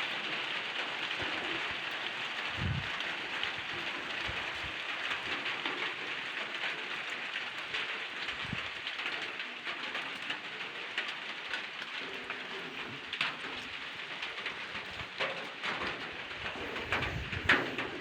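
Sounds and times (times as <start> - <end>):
light rain pattering: 0.0 - 18.0.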